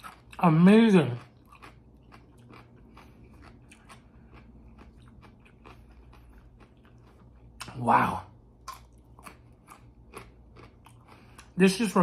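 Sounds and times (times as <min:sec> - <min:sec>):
chewing wet mouth smacks: 0:08.6 - 0:11.6.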